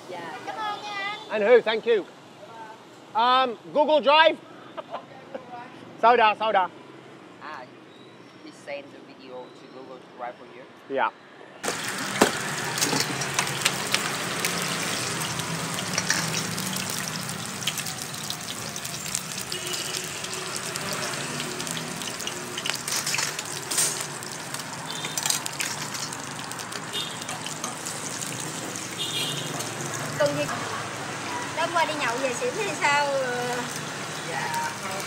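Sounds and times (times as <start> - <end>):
batter sizzling in oil: 11.6 - 35.0
metal utensils clinking on pan: 12.1 - 28.5.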